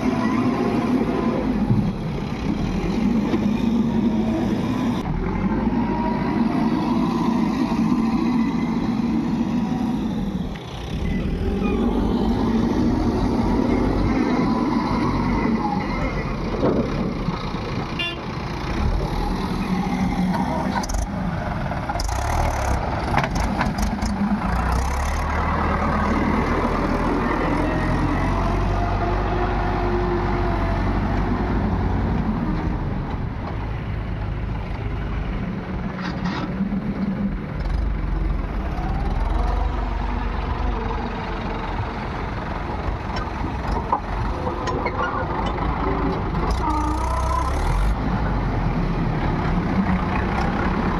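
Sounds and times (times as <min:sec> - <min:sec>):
heavy diesel engines running: 0:00.0 - 0:50.9.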